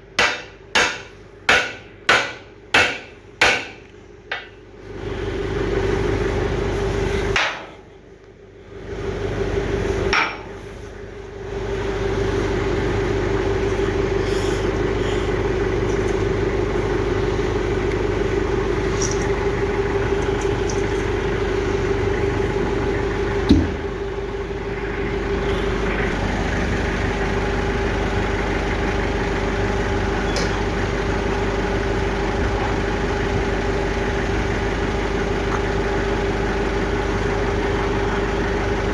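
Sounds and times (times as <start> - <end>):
machine motor humming: 11.3 - 38.9.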